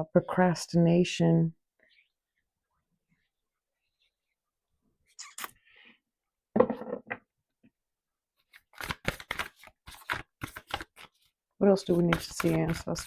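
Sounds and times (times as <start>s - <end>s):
cards being shuffled: 8.4s - 13.0s.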